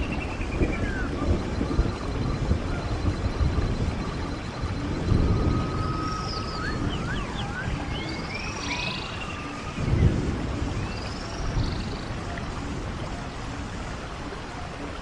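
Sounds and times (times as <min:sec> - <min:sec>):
songbird whistling: 0:00.0 - 0:10.2
stream water gurgling: 0:00.0 - 0:15.0.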